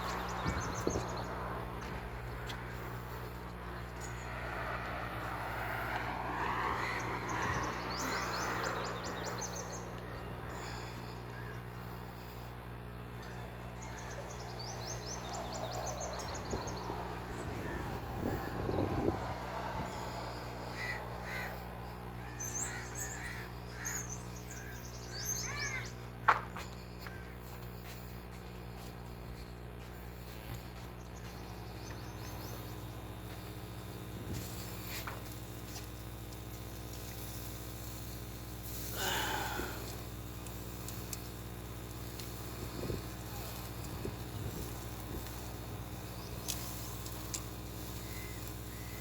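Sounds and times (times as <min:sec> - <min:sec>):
vehicle passing by: 0:00.0 - 0:10.8, 0:13.5 - 0:23.4
birds calling: 0:00.0 - 0:49.0
steady low hum: 0:00.0 - 0:49.0.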